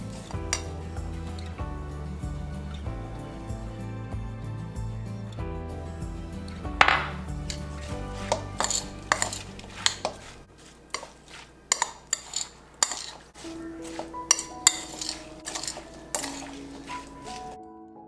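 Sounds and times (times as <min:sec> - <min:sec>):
soft background music: 0:00.0 - 0:10.5, 0:13.3 - 0:18.0
dishes and cutlery clinking: 0:08.3 - 0:17.6.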